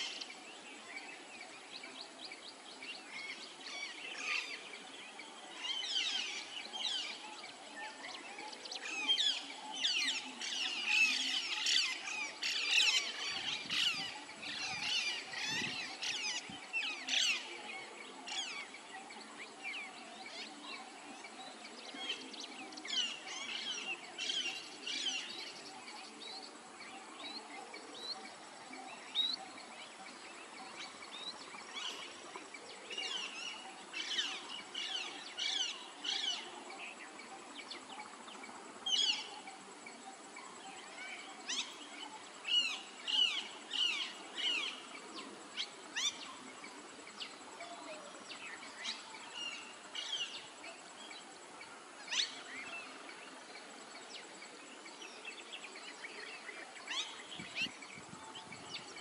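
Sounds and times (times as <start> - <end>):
small birds chirping: 0.0 - 8.0
faint steady hiss: 0.0 - 59.0.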